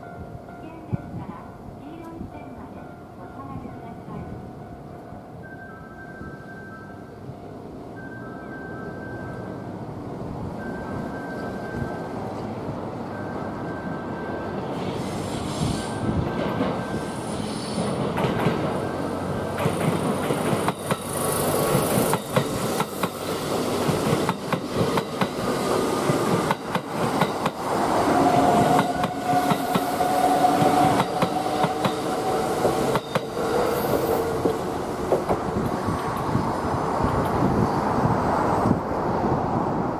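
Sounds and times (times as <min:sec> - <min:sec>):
train wheels clacking over rail joints: 0:19.4 - 0:27.7.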